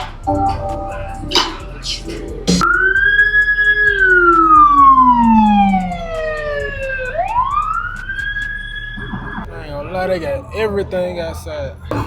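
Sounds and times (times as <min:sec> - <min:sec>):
police siren wailing: 0:00.0 - 0:09.6.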